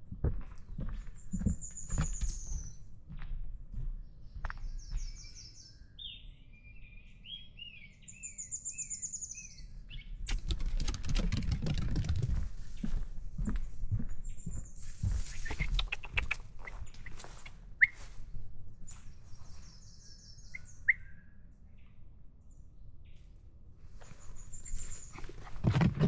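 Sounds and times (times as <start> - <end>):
footsteps on trail: 0.1 - 5.3, 12.3 - 19.8, 24.0 - 26.0
songbirds calling: 0.6 - 2.9, 3.8 - 10.6, 12.6 - 18.2, 18.8 - 26.0.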